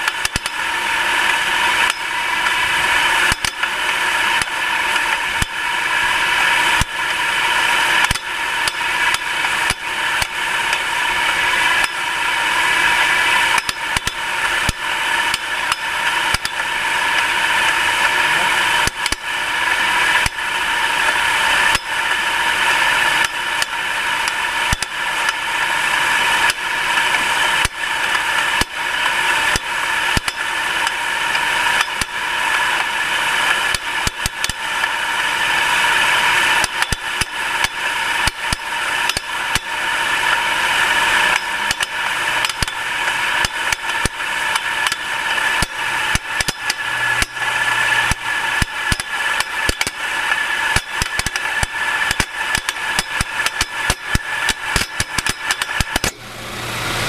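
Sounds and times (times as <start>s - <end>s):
high engine whine: 0.0s - 57.0s
engine knocking: 12.8s - 56.0s.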